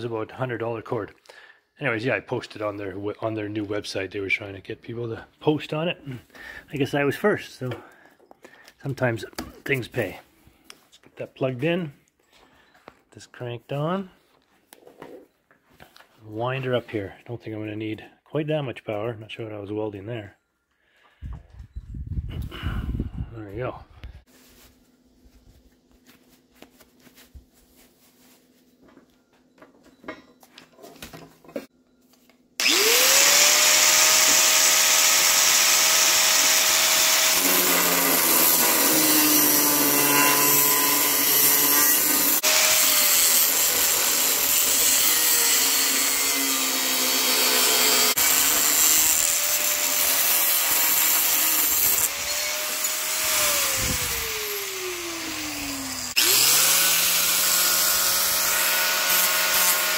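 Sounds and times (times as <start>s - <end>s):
electric grinder on steel: 32.6s - 59.9s.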